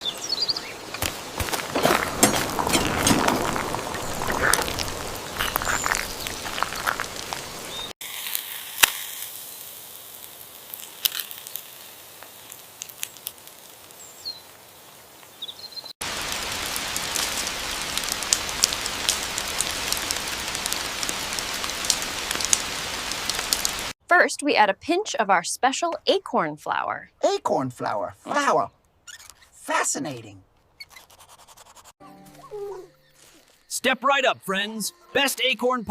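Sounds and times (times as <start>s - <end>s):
crackling patter of ticks: 1.9s - 14.6s, 16.1s - 23.9s.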